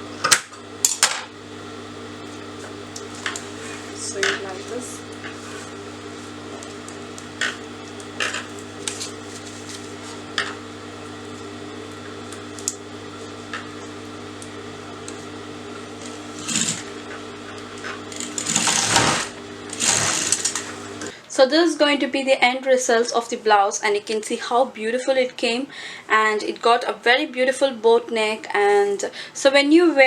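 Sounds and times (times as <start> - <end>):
electric sewing machine running: 0.0 - 21.1.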